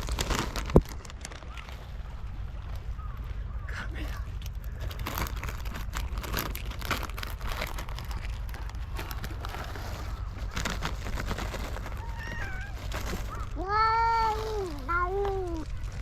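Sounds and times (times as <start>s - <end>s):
cats crunching dry food: 0.0s - 16.0s
low rumble: 0.0s - 16.0s
faint cat meow: 12.0s - 15.4s.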